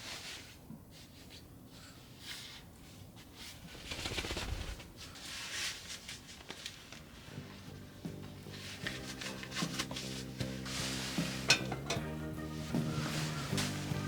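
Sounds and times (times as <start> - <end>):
rustling and handling: 2.3 - 14.0.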